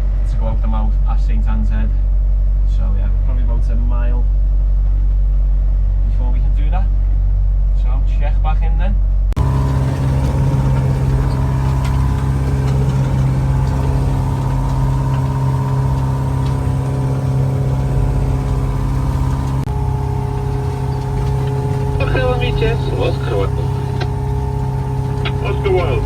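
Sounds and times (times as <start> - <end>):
boat engine droning: 9.4 - 26.0.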